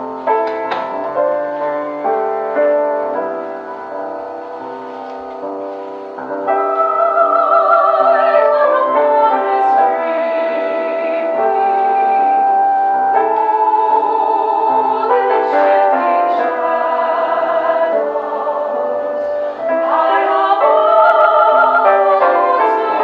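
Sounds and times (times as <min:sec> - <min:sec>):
instrumental accompaniment: 0:00.0 - 0:23.0
operatic singing: 0:06.4 - 0:23.0.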